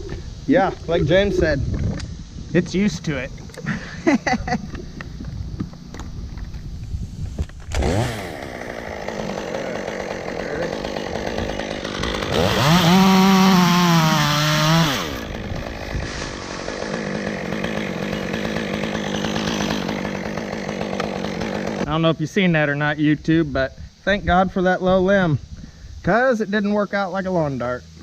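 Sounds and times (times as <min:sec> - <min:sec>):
chainsaw cutting wood: 0:07.4 - 0:21.9.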